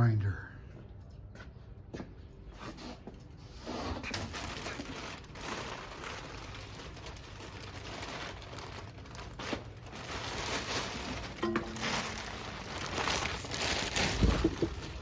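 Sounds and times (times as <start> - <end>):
handling noises: 1.0 - 15.0
packaging rustling and crinkling: 3.5 - 15.0.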